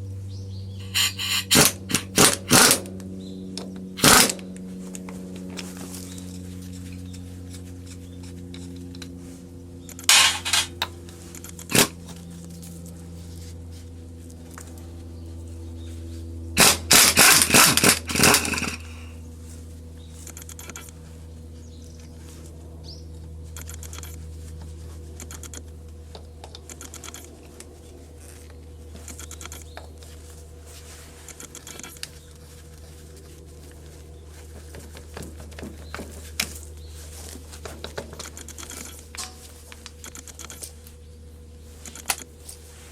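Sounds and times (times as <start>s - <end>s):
steady low hum: 0.0s - 42.9s
metal tools clinking and knocking: 0.8s - 2.6s, 10.0s - 10.9s, 38.3s - 39.5s.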